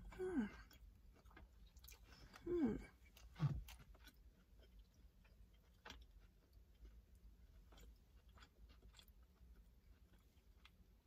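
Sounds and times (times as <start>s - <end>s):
person humming mm: 0.0s - 0.7s, 2.4s - 3.0s
person chewing food: 0.0s - 11.0s.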